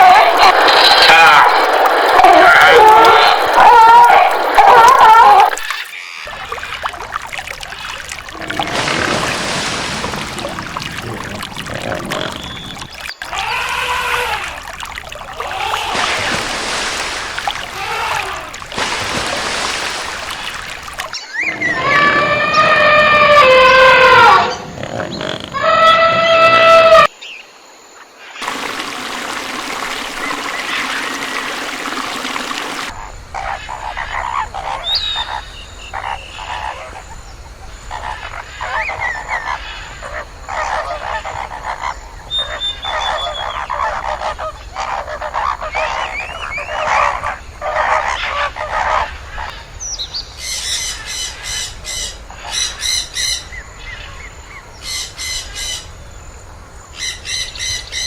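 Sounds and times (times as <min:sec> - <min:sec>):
shrill animal calls: 0:12.4 - 0:19.7, 0:21.3 - 0:24.7, 0:25.5 - 0:27.1.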